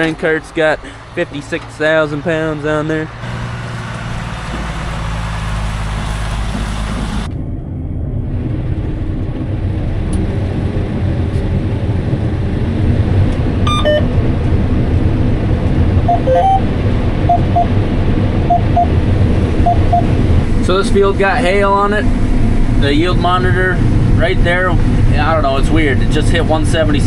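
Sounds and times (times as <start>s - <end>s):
harvester engine drone: 0.0s - 27.0s
short electronic beeps: 13.7s - 14.1s, 16.1s - 16.7s, 17.3s - 17.7s, 18.5s - 19.0s, 19.6s - 20.1s.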